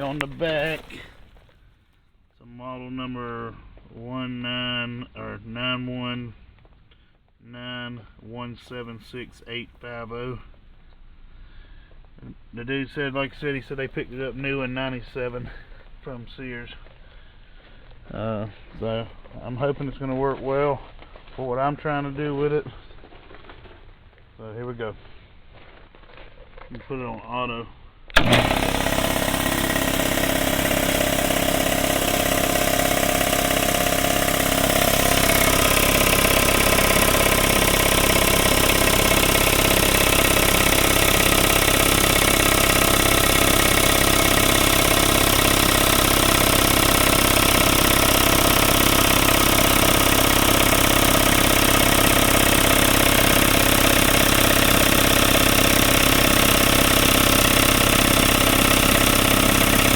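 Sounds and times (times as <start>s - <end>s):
air compressor running: 0.0s - 1.6s, 28.1s - 59.9s.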